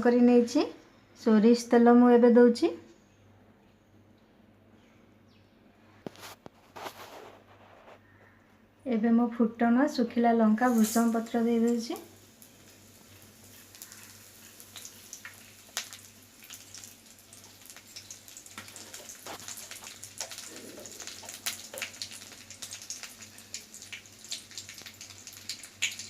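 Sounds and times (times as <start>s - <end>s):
spices crackling in hot oil: 10.5s - 26.0s.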